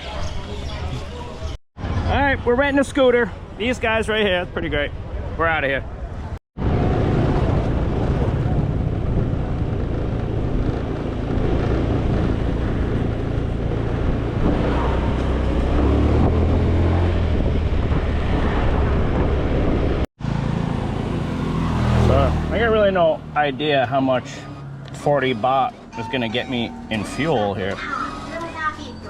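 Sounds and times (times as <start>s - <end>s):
wind rushing over microphone: 6.1s - 20.1s.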